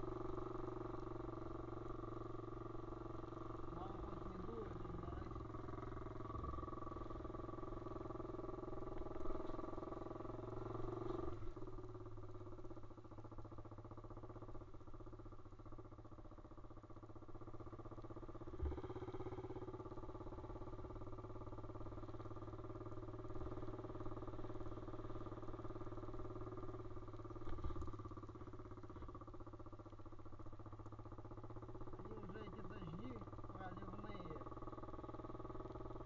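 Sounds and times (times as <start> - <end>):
pit bike engine running: 0.0 - 36.0.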